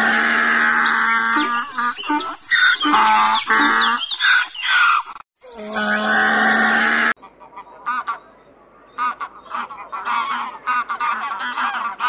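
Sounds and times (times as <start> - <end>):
donkey braying: 0.0 - 7.1.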